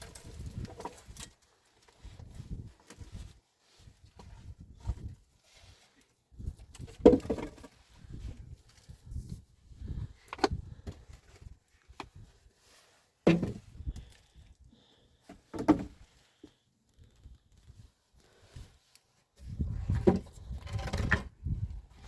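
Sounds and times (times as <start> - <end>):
objects knocking and thumping: 6.8 - 7.8, 13.3 - 14.0, 15.3 - 16.0, 19.7 - 21.3.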